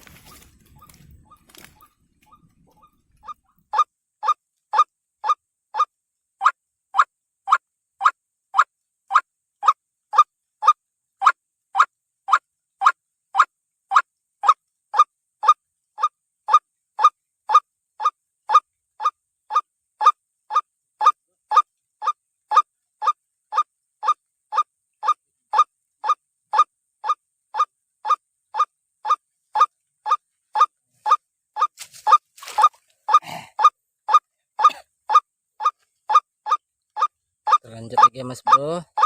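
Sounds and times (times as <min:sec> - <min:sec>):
bird short nasal calls: 0:08.6 - 0:39.0.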